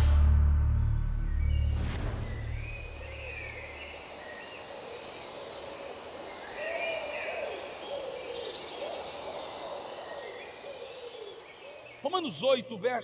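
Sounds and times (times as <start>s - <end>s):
birds chirping and calling: 1.1s - 13.0s
bird trill: 2.3s - 4.8s.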